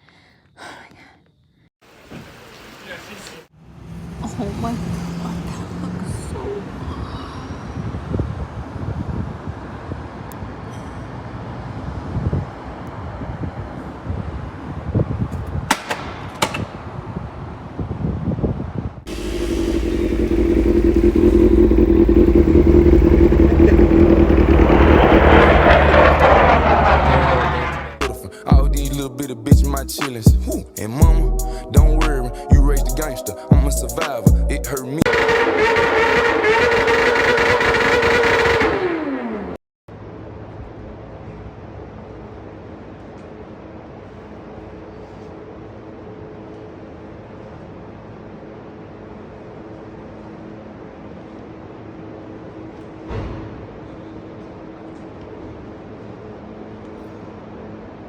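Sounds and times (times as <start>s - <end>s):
engine drone: 19.1s - 28.2s, 35.1s - 39.6s
vehicle rumble: 19.1s - 28.2s.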